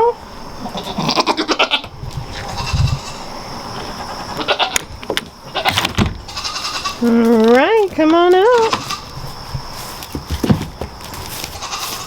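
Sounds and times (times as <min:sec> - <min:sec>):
goats bleating: 0:00.6 - 0:03.3, 0:04.0 - 0:04.8, 0:06.3 - 0:07.4, 0:08.4 - 0:09.1, 0:11.5 - 0:12.0.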